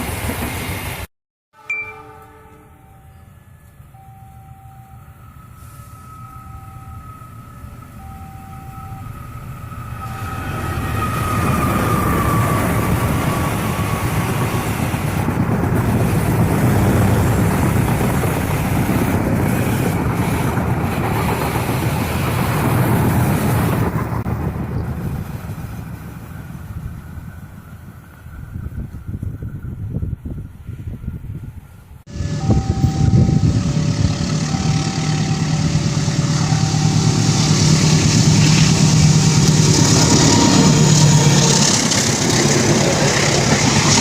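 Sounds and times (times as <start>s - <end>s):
diesel train passing: 0.0s - 44.0s
beeping warning tone: 1.6s - 13.4s, 32.1s - 41.3s.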